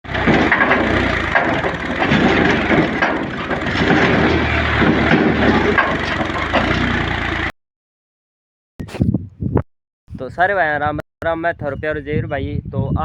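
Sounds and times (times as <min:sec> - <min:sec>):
loud crackling and crunching: 0:00.0 - 0:07.5
tractor engine humming: 0:00.0 - 0:07.5.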